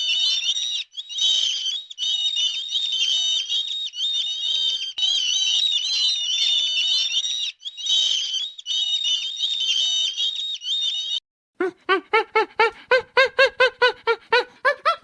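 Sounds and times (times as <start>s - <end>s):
high-pitched animal cries: 10.8s - 15.0s.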